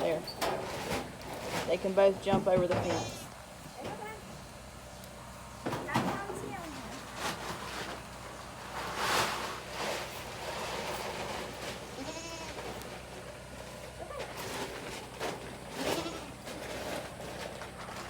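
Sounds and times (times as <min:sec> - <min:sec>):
goat bleating: 0:02.8 - 0:03.3, 0:11.9 - 0:12.8, 0:15.7 - 0:16.6.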